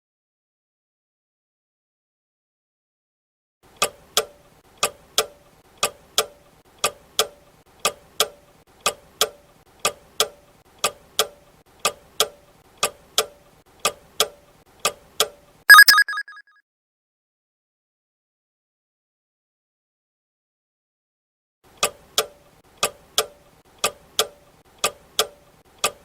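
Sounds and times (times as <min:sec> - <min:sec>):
short ringing alarm chime: 0:15.7 - 0:16.4.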